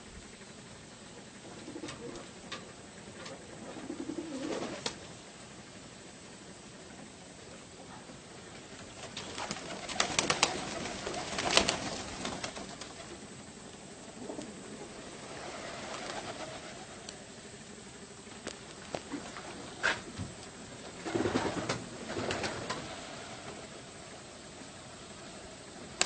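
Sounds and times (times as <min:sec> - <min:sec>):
pigeons cooing: 0:01.2 - 0:05.0, 0:07.8 - 0:13.3, 0:14.0 - 0:17.3, 0:18.9 - 0:20.2, 0:20.8 - 0:25.8.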